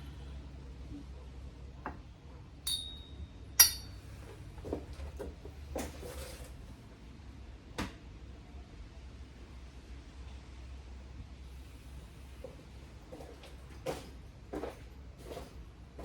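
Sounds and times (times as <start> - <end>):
small metal parts clinking: 2.7 - 4.0.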